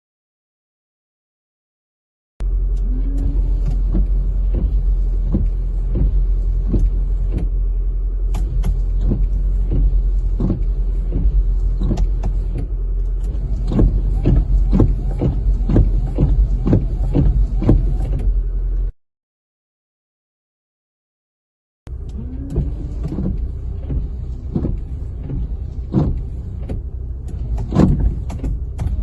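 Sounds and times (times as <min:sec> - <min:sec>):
car engine hum: 0:02.4 - 0:19.0, 0:21.9 - 0:29.0
windshield wipers knocking: 0:02.7 - 0:07.7, 0:08.3 - 0:18.4, 0:21.9 - 0:29.0.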